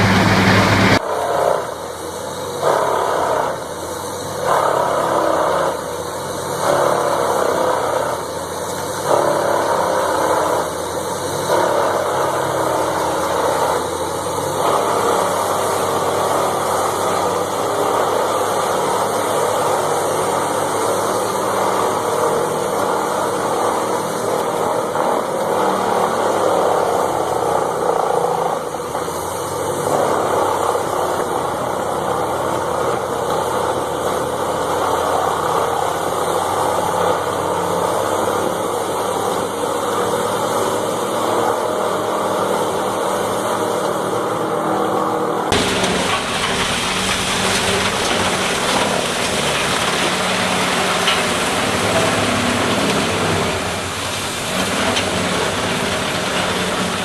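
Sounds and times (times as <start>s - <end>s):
large engine-driven machine running: 0.0s - 57.0s.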